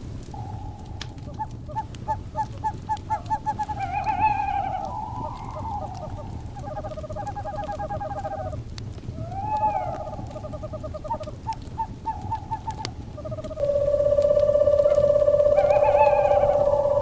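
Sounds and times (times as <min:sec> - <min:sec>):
crackling fire with pops: 0:00.0 - 0:17.0
owls trilling: 0:00.3 - 0:17.0
steady held tone: 0:13.5 - 0:17.0.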